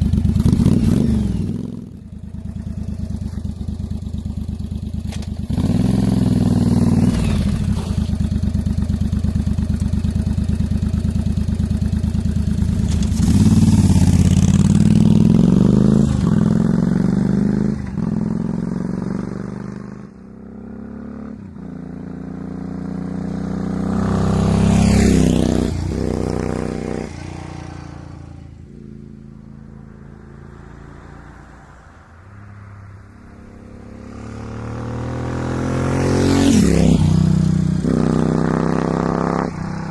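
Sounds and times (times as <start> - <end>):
motorcycle engine accelerating: 0.0 - 31.4, 32.6 - 39.9.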